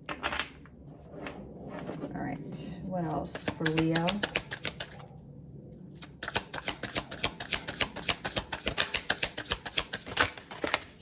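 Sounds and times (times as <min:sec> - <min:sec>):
cards being shuffled: 0:03.3 - 0:05.0, 0:06.0 - 0:11.0.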